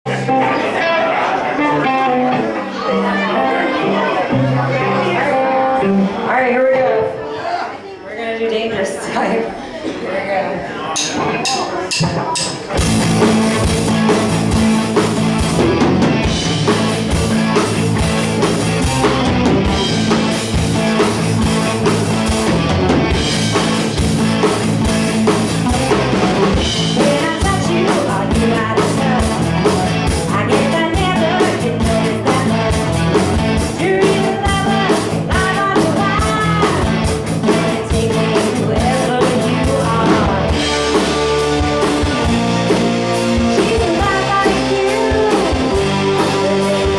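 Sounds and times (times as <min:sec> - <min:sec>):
bass guitar: 0:00.0 - 0:07.5, 0:11.1 - 0:46.9
electric guitar: 0:00.1 - 0:07.5, 0:12.6 - 0:46.9
drum kit: 0:11.0 - 0:46.9
person singing: 0:27.0 - 0:41.0, 0:43.2 - 0:46.9.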